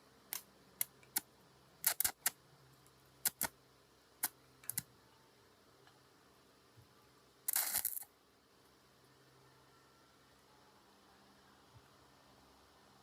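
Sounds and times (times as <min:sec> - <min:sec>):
faint low hum: 0:00.0 - 0:13.0
sharp clicks and taps: 0:03.2 - 0:03.5.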